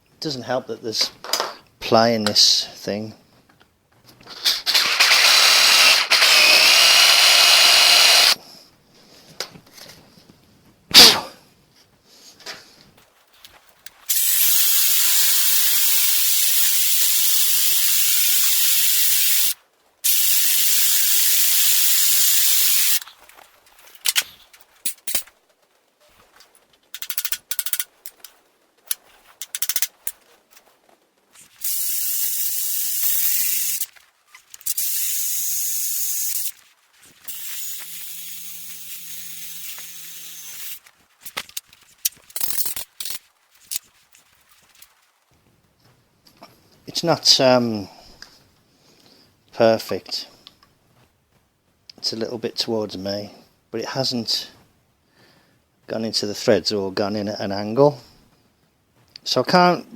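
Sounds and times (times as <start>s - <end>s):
compressed air hissing: 14.1s - 23.0s, 31.5s - 33.9s, 37.3s - 40.8s.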